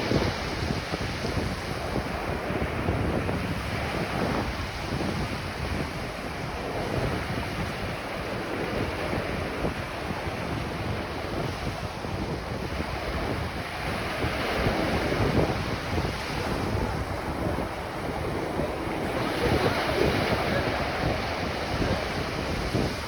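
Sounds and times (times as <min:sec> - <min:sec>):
ocean waves washing onto beach: 0:00.0 - 0:23.0
wind buffeting microphone: 0:00.0 - 0:23.0.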